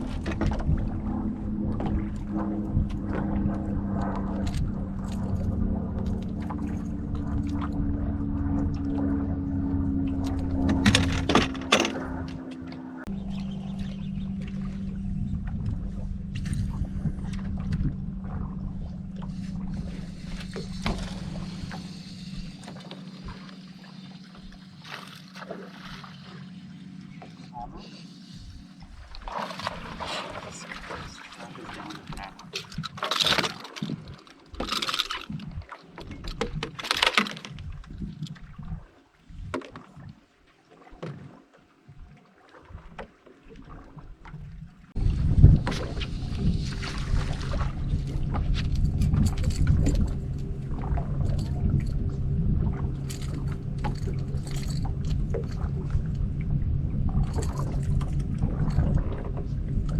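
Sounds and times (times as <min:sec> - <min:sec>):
boat motor humming: 0:00.0 - 0:39.4, 0:42.7 - 0:59.9
wind gusts on microphone: 0:45.0 - 0:59.9.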